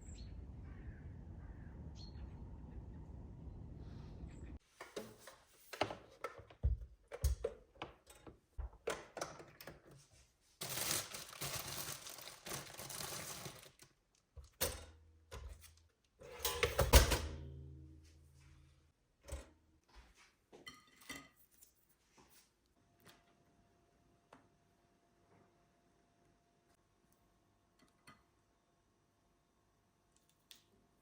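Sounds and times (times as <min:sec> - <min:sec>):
short low hum: 0:00.0 - 0:04.6
rustling: 0:10.6 - 0:13.9
objects clattering: 0:10.6 - 0:15.6.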